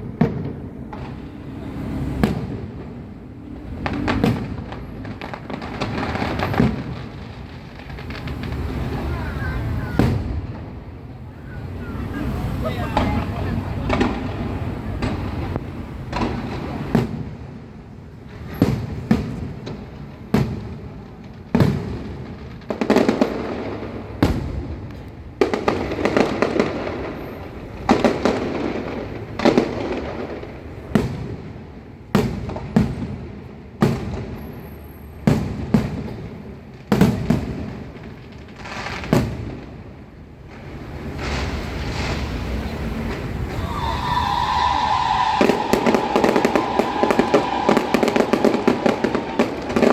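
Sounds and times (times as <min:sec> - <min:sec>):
fireworks bursting: 0:00.0 - 0:49.9.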